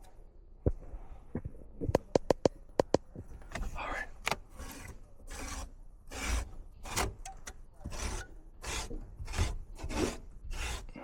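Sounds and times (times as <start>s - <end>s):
brush scrubbing a metal coil: 8.0s - 11.0s.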